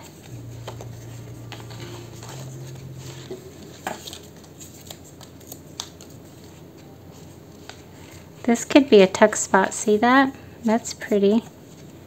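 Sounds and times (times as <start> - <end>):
paper rustling: 0.0 - 8.6
low steady hum: 0.0 - 12.0.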